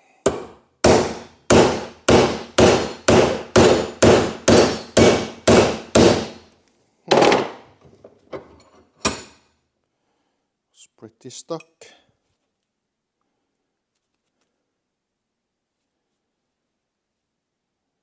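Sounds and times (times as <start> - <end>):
hammer striking steel pin: 0.2 - 6.4.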